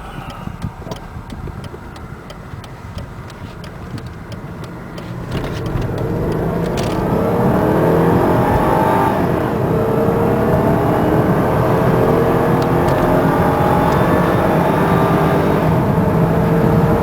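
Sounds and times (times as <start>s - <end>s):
turn-signal relay ticking: 0.0s - 6.8s
gear shift: 0.0s - 9.0s, 10.9s - 17.0s
car engine accelerating: 0.0s - 17.0s.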